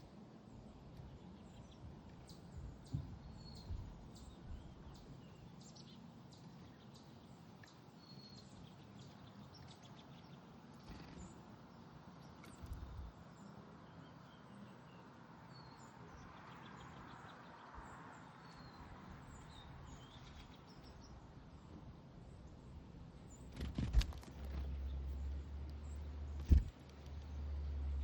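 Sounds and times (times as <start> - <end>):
low background hum: 0.0 - 17.6, 18.4 - 28.0
songbirds chirping: 0.0 - 28.0
brief thump: 26.4 - 26.7.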